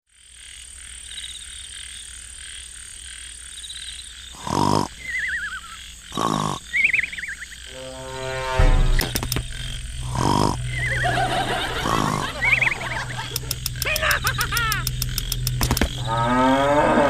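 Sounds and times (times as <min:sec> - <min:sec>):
pulsing high-pitched animal chorus: 0:04.3 - 0:17.0
loud low animal calls: 0:04.4 - 0:17.0
warbling whistles: 0:04.9 - 0:17.0.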